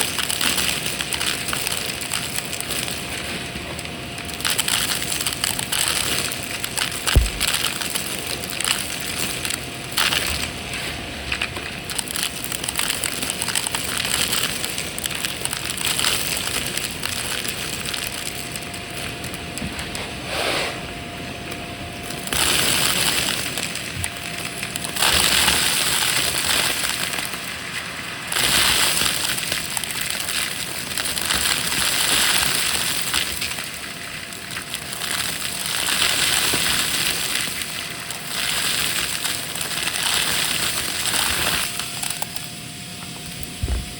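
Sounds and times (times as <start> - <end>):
debris crunching in vacuum: 0.0 - 43.9
vacuum cleaner motor whine: 2.6 - 4.4, 9.3 - 12.0, 17.8 - 29.9, 39.3 - 43.9.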